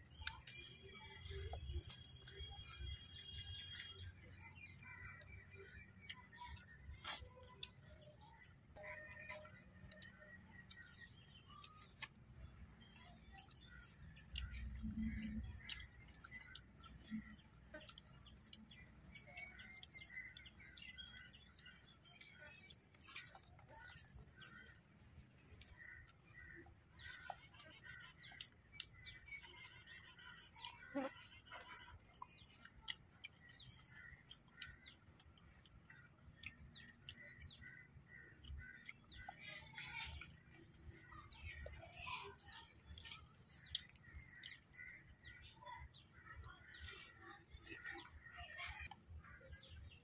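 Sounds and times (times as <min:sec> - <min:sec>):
people eating by hand: 0:00.0 - 0:50.0
small birds chirping: 0:00.0 - 0:50.0.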